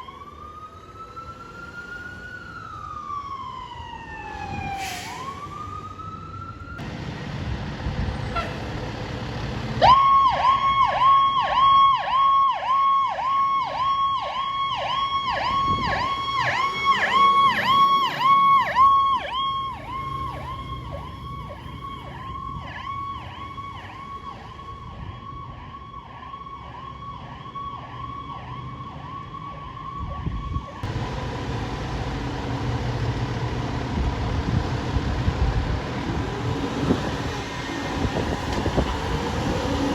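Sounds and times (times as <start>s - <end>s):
emergency siren yelping: 0.0s - 6.8s, 9.8s - 30.9s
low traffic rumble: 0.0s - 39.9s.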